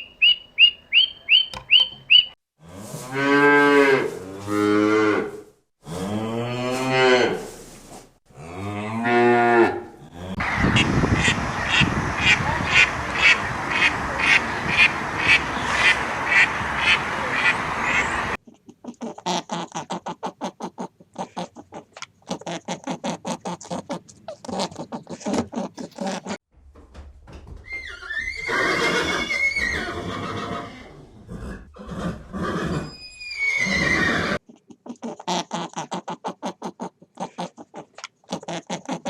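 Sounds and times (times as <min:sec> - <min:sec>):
ducks quacking: 0:10.4 - 0:18.4
horse whinnying: 0:27.7 - 0:34.4.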